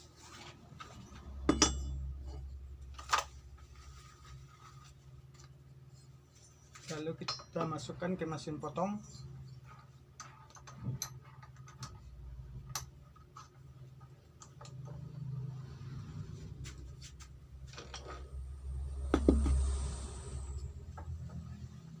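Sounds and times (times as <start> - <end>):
hiss: 18.8 - 20.8.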